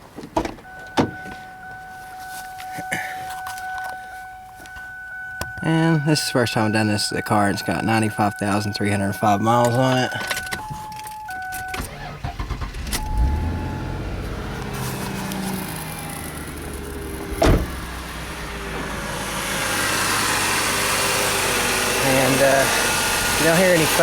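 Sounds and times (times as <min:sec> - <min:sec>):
electronic chime tones: 0:00.7 - 0:11.8
car engine starting and idling: 0:03.1 - 0:24.0.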